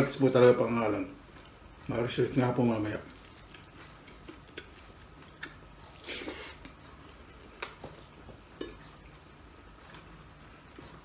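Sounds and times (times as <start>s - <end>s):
quiet chewing: 1.2s - 1.9s, 2.7s - 11.0s
mouth clicks and smacks: 3.0s - 9.3s.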